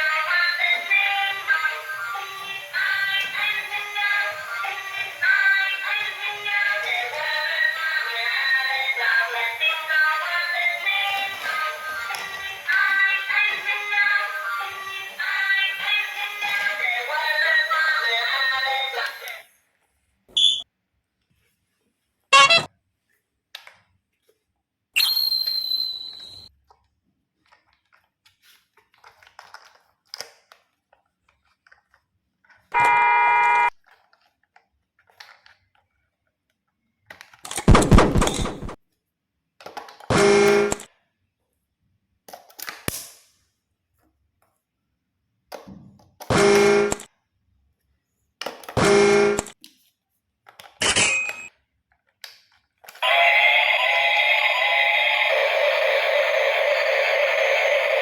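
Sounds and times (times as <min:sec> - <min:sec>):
music: 0:00.0 - 0:19.3
horn-like tones: 0:22.3 - 0:22.7, 0:32.8 - 0:33.7
ding: 0:50.9 - 0:51.5.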